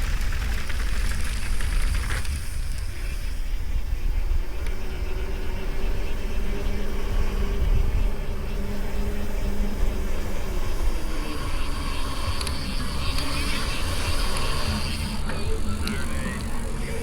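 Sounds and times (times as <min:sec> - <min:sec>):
bike tyres rumbling on dirt: 0:00.0 - 0:03.9, 0:10.6 - 0:17.0.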